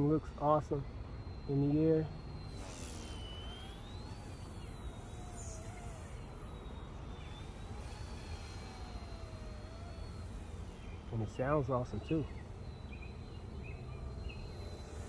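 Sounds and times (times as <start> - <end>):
toy helicopter motor whine: 0.0 - 15.0.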